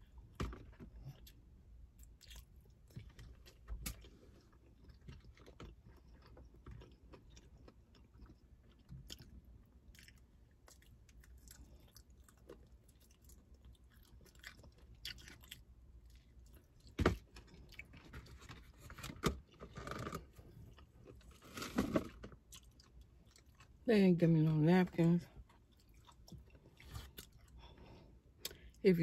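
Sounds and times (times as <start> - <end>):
crunching fried chicken: 1.0 - 23.8.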